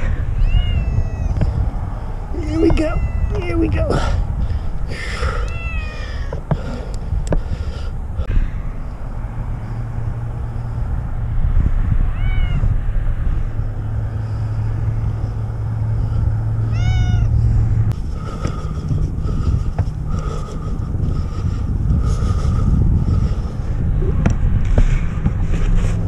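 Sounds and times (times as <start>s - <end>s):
cat meowing: 0.2s - 1.4s, 2.4s - 3.7s, 5.4s - 6.3s, 12.1s - 12.8s, 16.7s - 17.3s.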